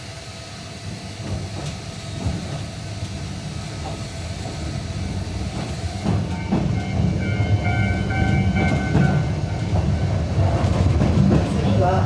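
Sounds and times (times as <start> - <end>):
train rumbling: 0.0 - 12.0
high whining tone: 3.6 - 10.4.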